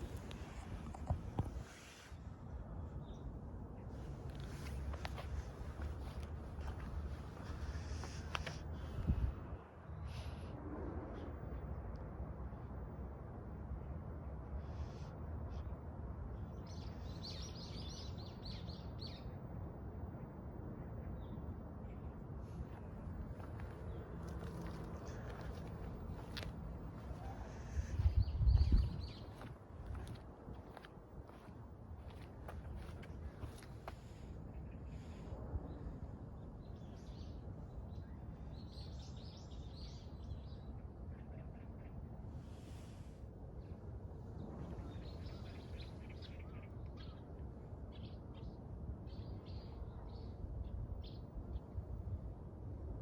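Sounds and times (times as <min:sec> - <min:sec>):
low outdoor rumble: 0:00.0 - 0:53.0
small birds chirping: 0:21.0 - 0:35.1.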